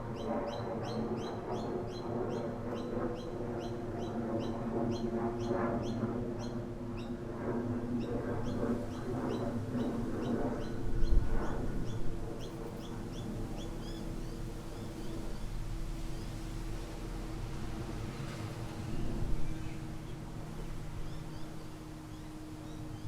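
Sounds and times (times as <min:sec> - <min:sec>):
wind gust buffeting microphone: 0:08.8 - 0:21.3.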